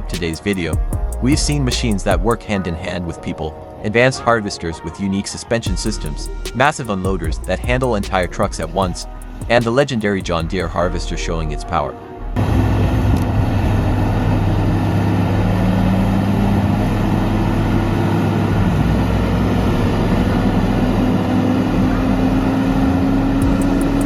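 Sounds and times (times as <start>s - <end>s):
heavy machine engine running: 12.4s - 24.0s.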